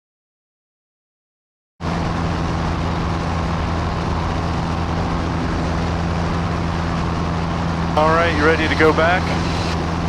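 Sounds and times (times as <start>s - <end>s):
light aircraft engine droning: 1.8s - 10.0s
rushing noise: 7.6s - 10.0s.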